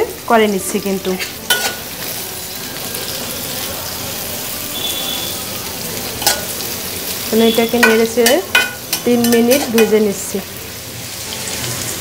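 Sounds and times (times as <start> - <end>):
carrots sizzling in butter: 0.0 - 12.0
metal spatula clicking on pan: 6.2 - 6.5, 7.8 - 10.0.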